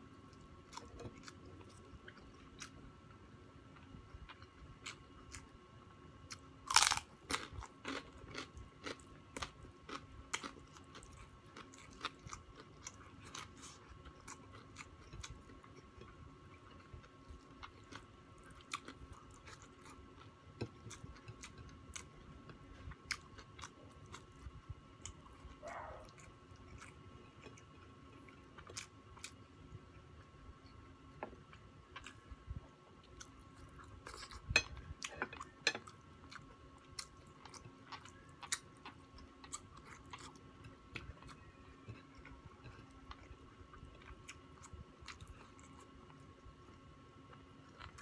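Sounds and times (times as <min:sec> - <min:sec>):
crunching bite and chewing: 0:06.3 - 0:22.1.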